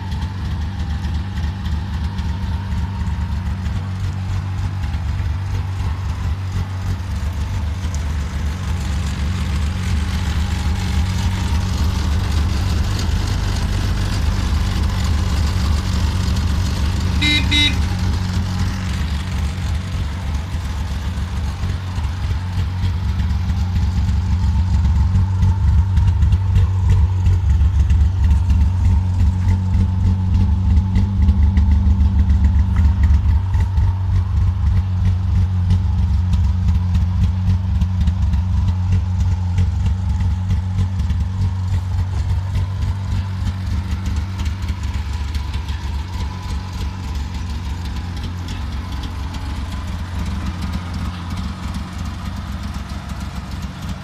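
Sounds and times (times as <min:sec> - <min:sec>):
two-stroke engine running: 0:00.0 - 0:54.0
horn toot: 0:17.2 - 0:18.0.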